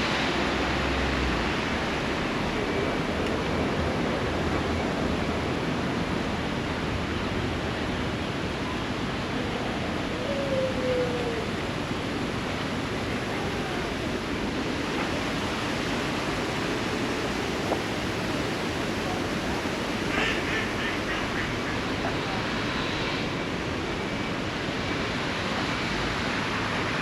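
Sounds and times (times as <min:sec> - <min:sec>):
rushing water: 0:00.0 - 0:27.0
ducks quacking: 0:20.0 - 0:22.5.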